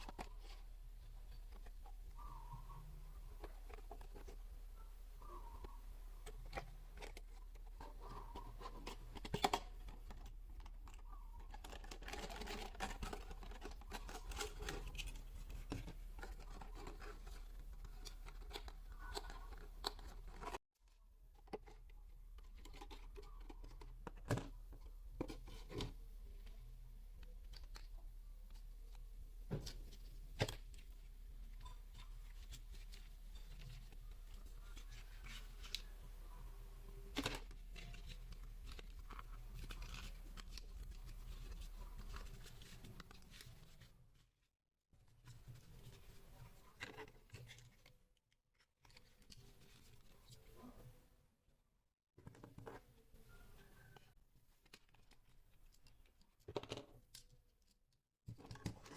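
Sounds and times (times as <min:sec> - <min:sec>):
hands handling toy packaging: 0:06.2 - 0:26.6, 0:36.8 - 0:43.9.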